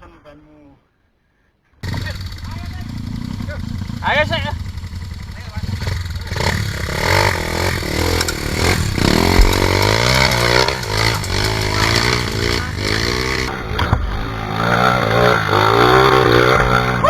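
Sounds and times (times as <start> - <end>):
motorcycle engine revving: 1.8 - 17.0
sharp clattering knocks: 6.3 - 17.0.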